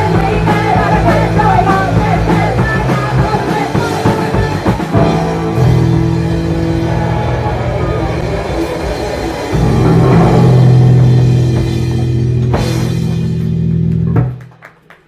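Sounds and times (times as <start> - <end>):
person singing: 0.0 - 5.3
live rock band playing: 0.0 - 14.5.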